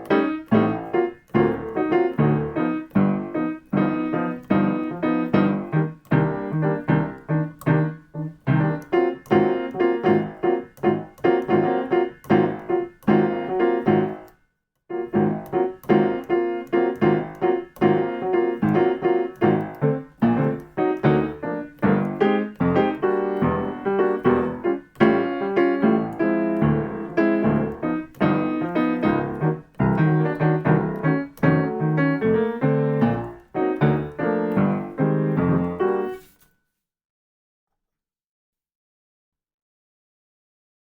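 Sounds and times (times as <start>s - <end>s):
piano chords: 0.0s - 36.3s.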